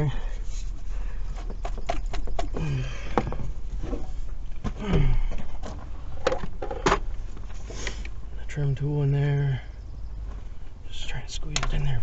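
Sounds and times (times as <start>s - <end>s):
person grunting: 4.8s - 5.4s.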